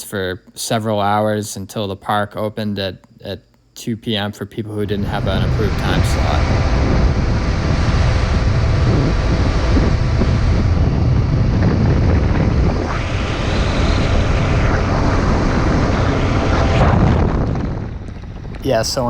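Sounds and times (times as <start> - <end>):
motorcycle engine drone: 4.7 - 19.0
wind rush over microphone: 4.7 - 19.0.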